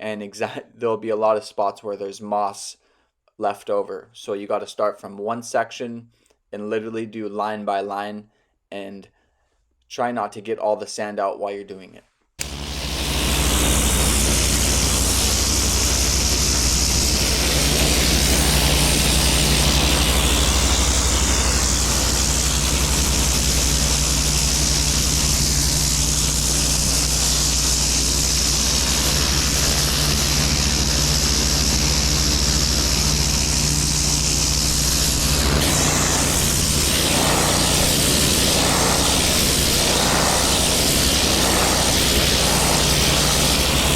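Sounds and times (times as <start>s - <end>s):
hissing water spray: 12.4s - 43.9s
pressure washer engine hum: 12.4s - 43.9s.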